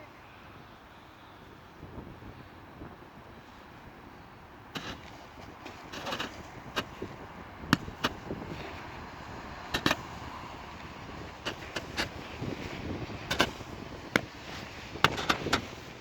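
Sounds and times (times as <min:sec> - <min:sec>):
sharp clicks and knocks: 0:09.7 - 0:10.1, 0:11.4 - 0:12.2, 0:13.3 - 0:14.4, 0:15.0 - 0:15.8.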